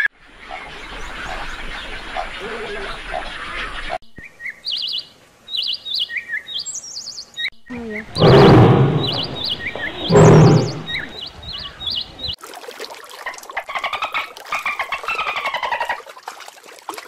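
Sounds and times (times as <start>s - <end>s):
trilled bird chirps: 7.9s - 11.3s
orca calls: 8.0s - 11.1s
big cat growling: 8.1s - 11.1s.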